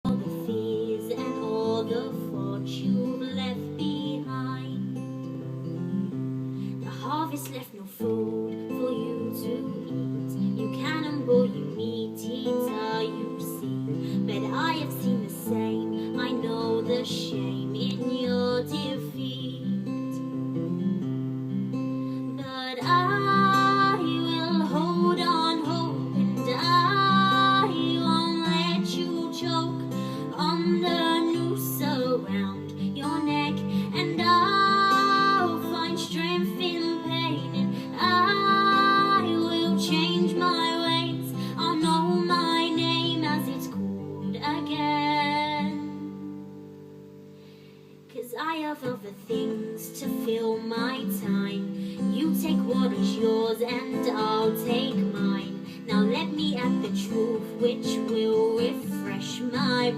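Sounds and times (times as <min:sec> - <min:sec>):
person singing: 0:00.0 - 0:04.9, 0:06.8 - 0:20.3, 0:22.2 - 0:46.3, 0:48.1 - 0:59.9
acoustic guitar playing: 0:00.0 - 0:59.9.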